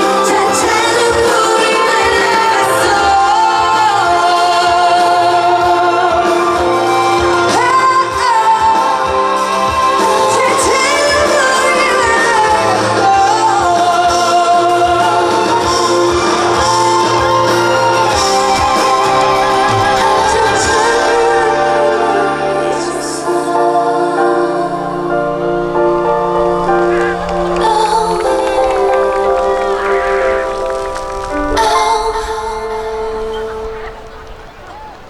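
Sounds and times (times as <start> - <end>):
amplified instrumental accompaniment: 16.0 - 35.0
woman singing with vibrato: 17.9 - 34.6.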